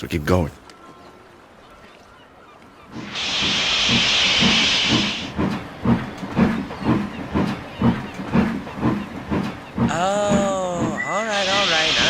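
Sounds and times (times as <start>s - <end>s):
steam locomotive chuffing: 3.0s - 12.0s
steam locomotive hissing: 3.0s - 12.0s.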